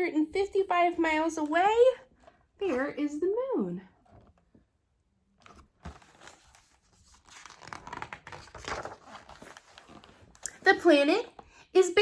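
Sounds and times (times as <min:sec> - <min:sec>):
book pages rustling and crinkling: 0:05.3 - 0:11.5.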